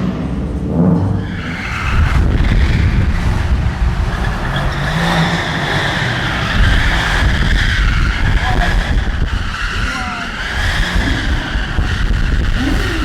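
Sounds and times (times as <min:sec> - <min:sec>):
car engine revving: 0:00.0 - 0:13.0
low rumble: 0:00.0 - 0:13.0.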